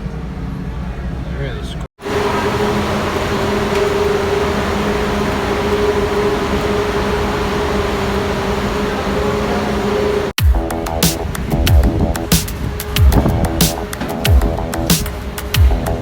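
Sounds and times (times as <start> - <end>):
vehicle engine drone: 0.4 - 16.0
music: 10.4 - 16.0.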